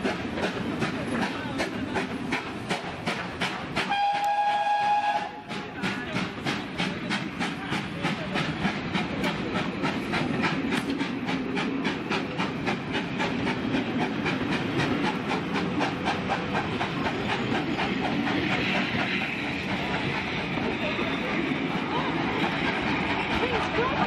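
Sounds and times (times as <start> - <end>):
low train rumble: 0.0 - 24.0
steam hiss: 0.0 - 24.0
wheels clicking over rail joints: 0.0 - 24.0.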